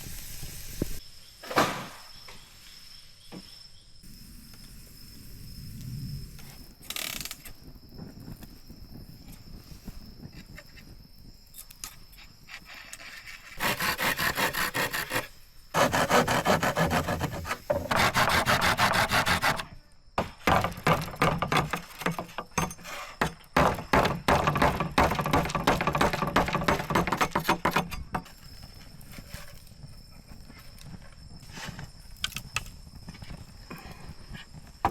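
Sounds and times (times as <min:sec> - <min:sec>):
hand tool rasping bamboo: 0:12.7 - 0:28.0.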